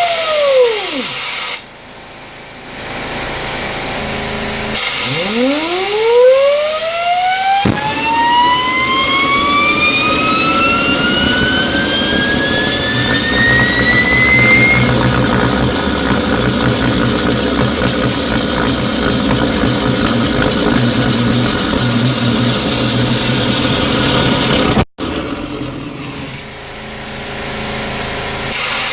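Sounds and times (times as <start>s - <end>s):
turbine whine rising in pitch: 0.0s - 28.7s
burner roar: 4.8s - 26.0s.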